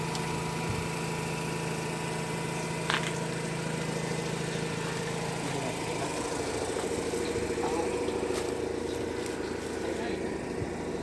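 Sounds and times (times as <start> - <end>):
rotary engine idling: 0.0 - 11.0.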